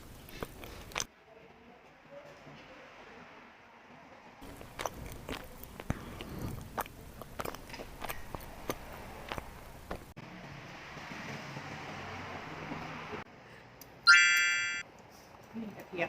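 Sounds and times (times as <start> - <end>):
person chewing crunchy food: 0.0 - 1.1, 4.4 - 10.1.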